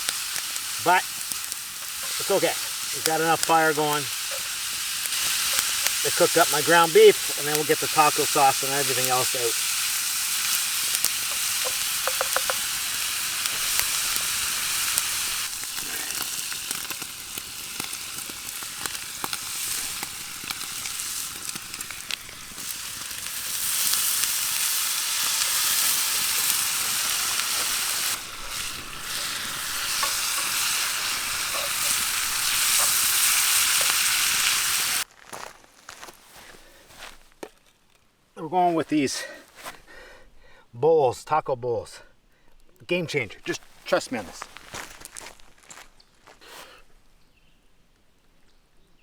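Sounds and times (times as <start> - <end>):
meat sizzling in a pan: 0.0 - 35.1
utensil clicking while stirring: 11.0 - 12.6.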